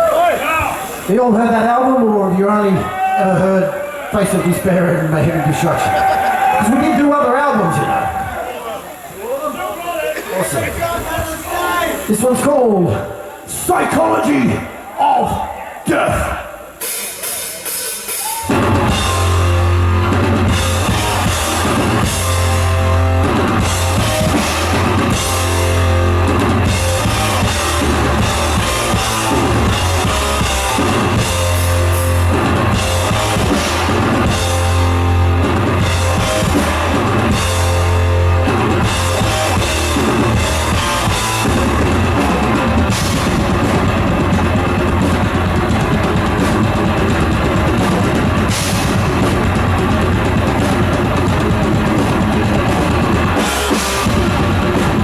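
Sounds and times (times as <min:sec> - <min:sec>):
thrash metal band playing live: 0:16.1 - 0:55.0.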